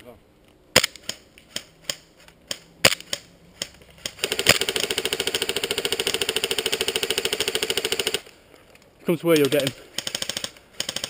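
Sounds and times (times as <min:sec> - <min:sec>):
airsoft rifle full-auto burst: 0:04.0 - 0:08.3, 0:09.9 - 0:11.0.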